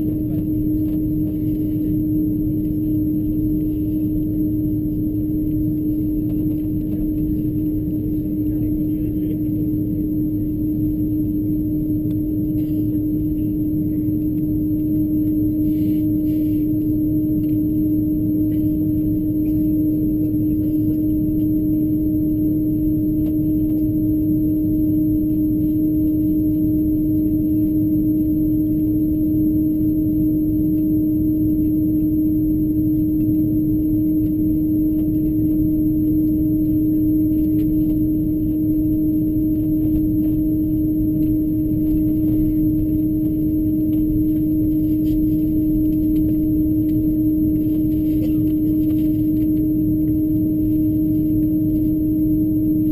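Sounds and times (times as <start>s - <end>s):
airplane cabin rumble: 0.0s - 52.9s
low hum: 0.0s - 52.9s.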